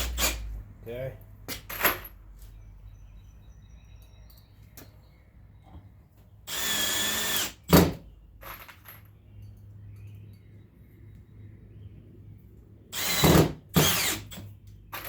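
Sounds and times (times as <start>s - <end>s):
power drill driving a screw: 0.0s - 0.4s, 6.5s - 8.0s, 13.0s - 14.4s.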